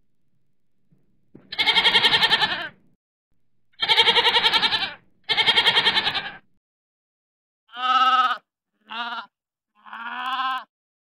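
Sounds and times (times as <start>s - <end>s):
goats bleating: 1.5s - 2.8s, 3.8s - 6.4s, 7.7s - 10.7s.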